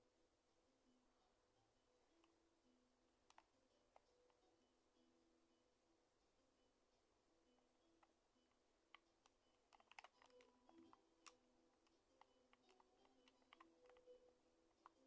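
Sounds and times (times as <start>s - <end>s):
faint low hum: 0.0s - 15.0s
faint clicks: 3.2s - 4.5s, 8.0s - 15.0s.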